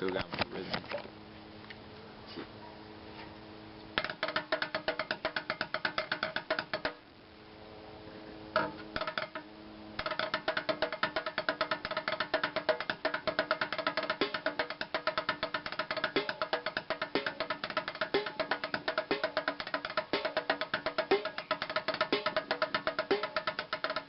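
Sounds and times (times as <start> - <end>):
drumming on buckets: 4.0 - 7.0, 8.6 - 24.0.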